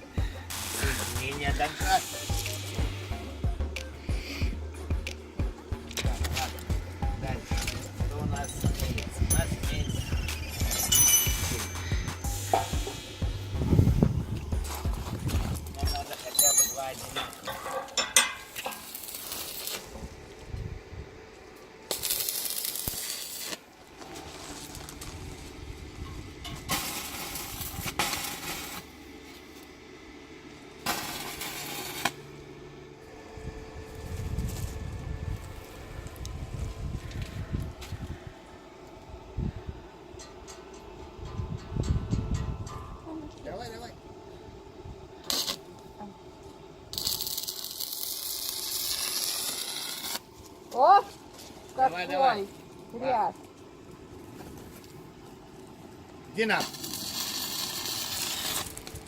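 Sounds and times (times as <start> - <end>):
arc welding crackling sizzle: 0.0 - 39.3, 43.4 - 44.0, 45.1 - 59.0
low hum: 0.0 - 56.4
metal clank: 15.9 - 18.9.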